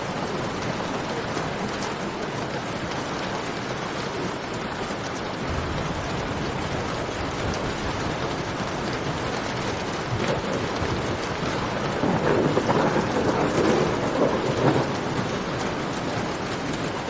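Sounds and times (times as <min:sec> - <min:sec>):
heavy rain falling: 0:00.0 - 0:17.0
low rumble: 0:05.4 - 0:11.2.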